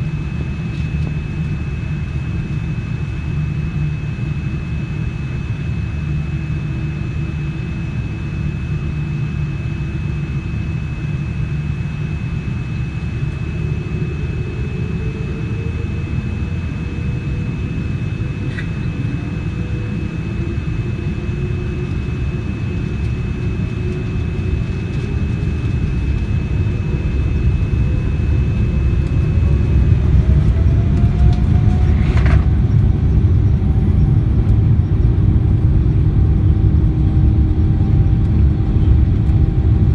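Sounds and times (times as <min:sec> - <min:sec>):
airliner engines rumbling: 0:00.0 - 0:39.9
faint rising whine: 0:13.0 - 0:39.9.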